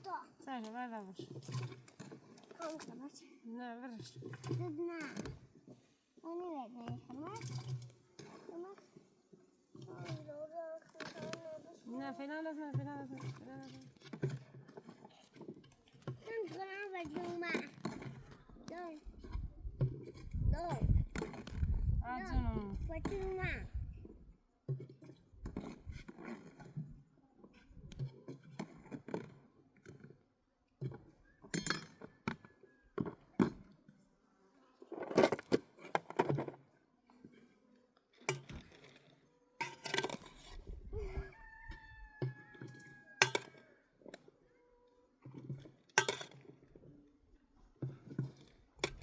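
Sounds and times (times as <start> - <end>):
dishes and utensils clinking: 31.5 - 32.0, 46.0 - 46.4.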